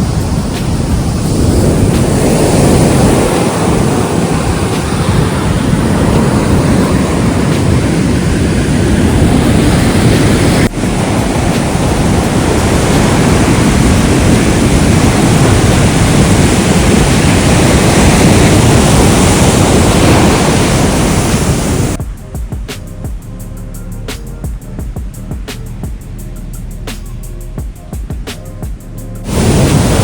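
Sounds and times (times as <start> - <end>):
music: 0.0 - 16.9, 22.0 - 30.0
sea surf breaking on beach: 0.0 - 22.0, 29.3 - 30.0
wind buffeting microphone: 0.0 - 30.0.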